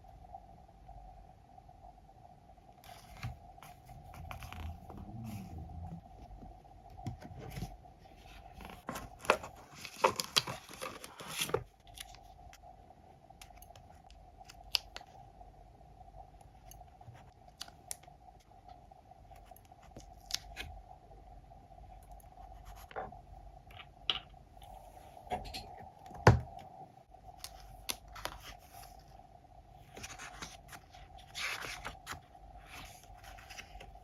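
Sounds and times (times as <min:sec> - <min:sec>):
faint steady hum: 0:00.0 - 0:34.0
paper rustle: 0:07.3 - 0:12.2, 0:29.8 - 0:34.0.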